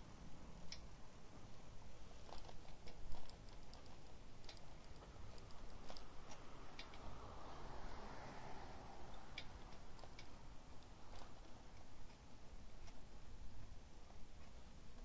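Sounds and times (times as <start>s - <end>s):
bicycle clicks and rattles: 2.1s - 8.3s, 9.0s - 13.1s.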